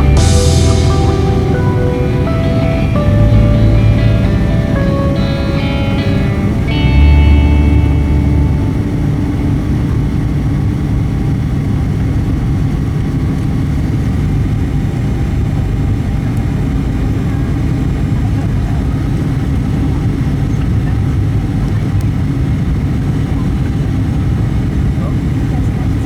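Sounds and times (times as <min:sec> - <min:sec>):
music: 0:00.0 - 0:11.0
low steady hum: 0:00.0 - 0:15.7
aircraft engine and airflow rush: 0:00.0 - 0:26.0.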